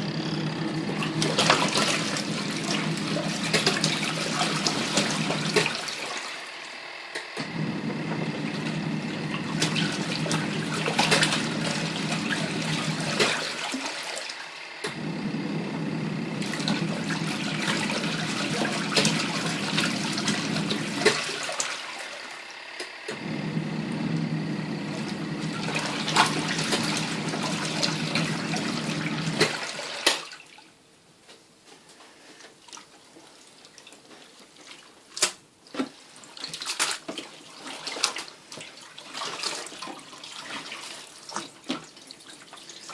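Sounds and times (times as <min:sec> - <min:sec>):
washing machine motor churning: 0:00.0 - 0:30.4, 0:35.9 - 0:42.9
water splashing and dripping: 0:09.4 - 0:14.3, 0:16.4 - 0:21.8.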